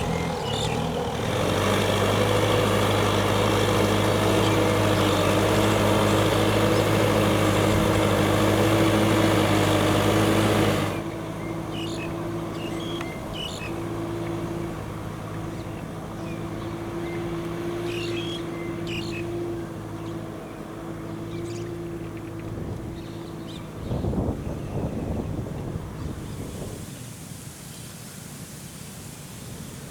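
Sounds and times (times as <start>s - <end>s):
bird chirps: 0.0s - 1.1s, 11.0s - 14.0s, 15.5s - 25.2s
tractor diesel engine running: 0.0s - 29.9s.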